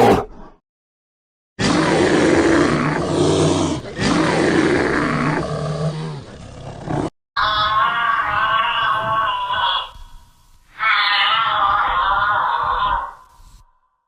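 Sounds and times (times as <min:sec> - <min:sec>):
big cat roaring: 0:01.6 - 0:09.9.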